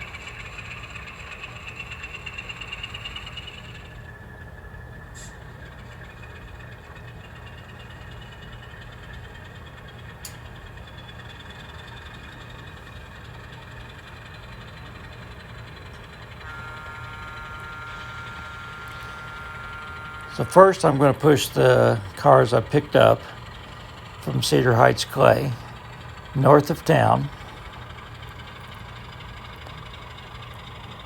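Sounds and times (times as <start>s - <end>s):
model locomotive engine rumble: 0.0s - 31.0s
steady higher tones: 16.4s - 28.1s.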